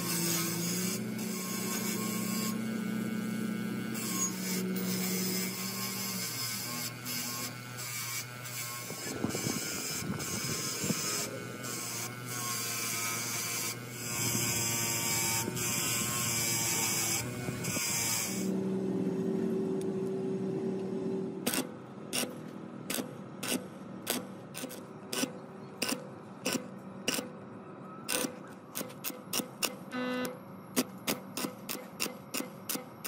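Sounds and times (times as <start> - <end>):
small electric motor whirring: 0.0 - 18.6.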